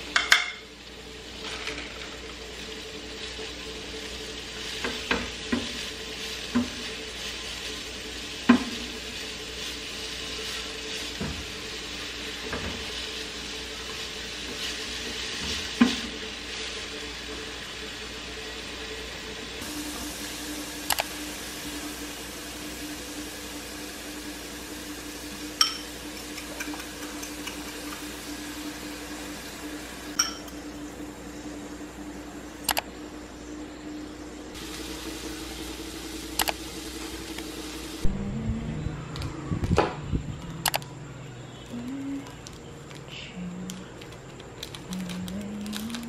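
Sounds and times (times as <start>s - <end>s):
vegetables sizzling in frying pan: 0.0s - 38.1s
steady hum: 0.0s - 46.0s
plastic sachets crinkling: 41.6s - 46.0s.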